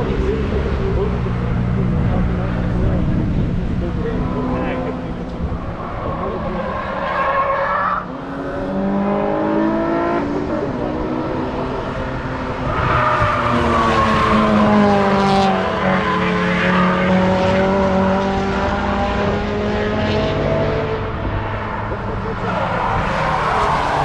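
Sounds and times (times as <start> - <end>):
race cars passing at speed: 0.0 - 24.0
engines revving through gear changes: 7.9 - 24.0.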